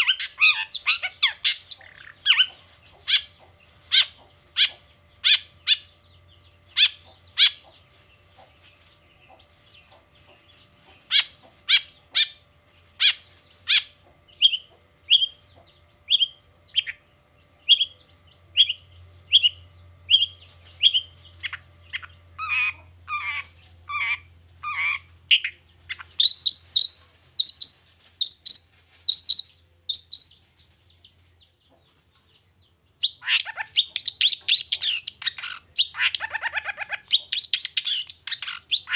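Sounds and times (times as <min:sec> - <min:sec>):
shrike singing: 0:00.0 - 0:06.0
fast bird chatter: 0:00.0 - 0:32.4, 0:33.0 - 0:38.9.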